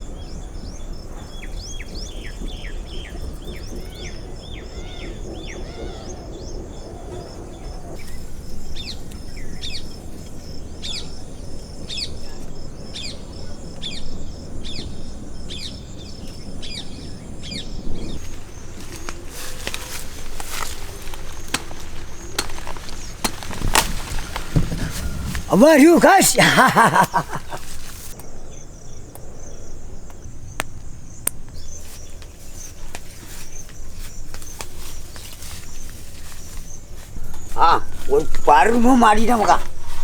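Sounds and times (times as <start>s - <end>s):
birds chirping: 0.0s - 40.0s
sharp knocks: 19.7s - 25.5s.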